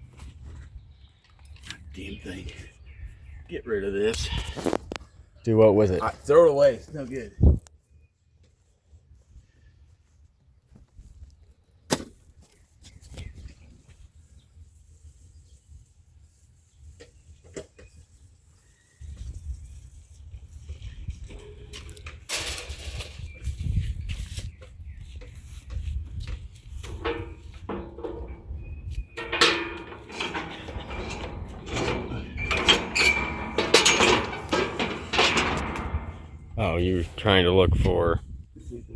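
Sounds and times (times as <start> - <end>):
metal tools clinking and rattling: 26.8 - 36.8
clattering knocks: 26.9 - 36.7.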